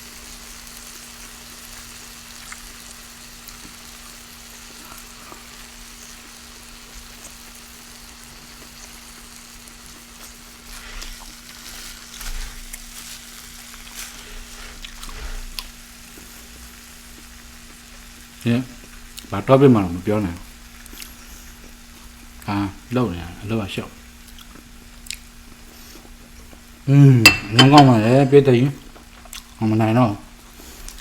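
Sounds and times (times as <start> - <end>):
steady hiss: 25.6 - 29.0.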